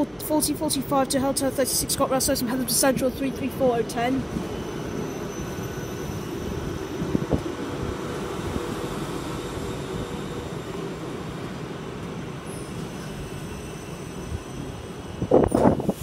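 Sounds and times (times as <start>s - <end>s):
faint train whine: 0.0s - 16.0s
train wheels rumbling on rails: 0.0s - 16.0s
rail clack: 4.2s - 10.8s.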